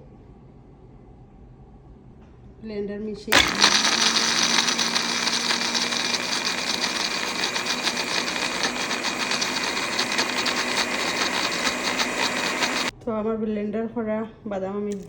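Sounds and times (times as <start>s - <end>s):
electric blender whirring: 3.3s - 12.9s.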